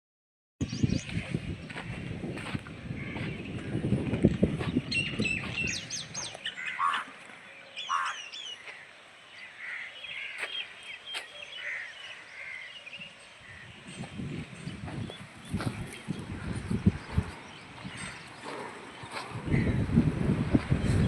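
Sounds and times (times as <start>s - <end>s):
low scuffing and rustling: 0.6s - 7.6s, 13.5s - 21.0s
birds chirping: 0.6s - 21.0s.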